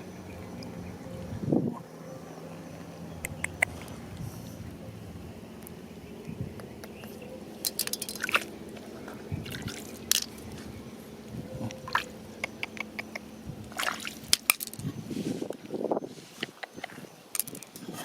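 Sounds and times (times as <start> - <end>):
stones clicking and crunching: 7.6 - 8.5, 14.3 - 14.9, 17.3 - 17.9.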